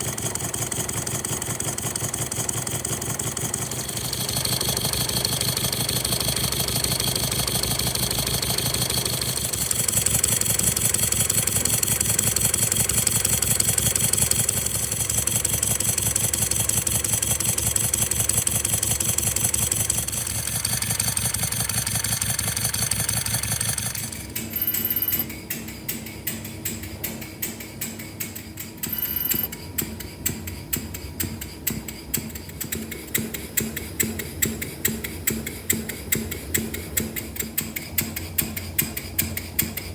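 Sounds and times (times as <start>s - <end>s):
model engine running fast: 0.0s - 24.4s
small mechanism clicking: 0.1s - 39.9s.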